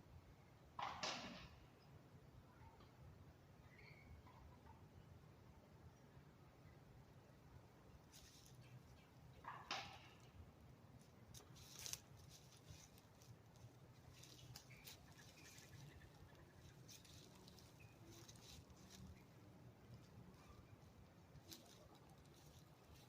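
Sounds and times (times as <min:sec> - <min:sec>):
faint rustles and clicks: 0:07.9 - 0:23.0.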